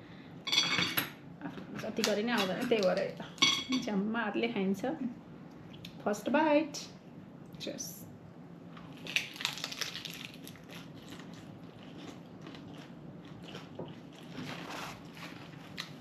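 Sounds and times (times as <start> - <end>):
chewing food with crunches: 8.8 - 16.0.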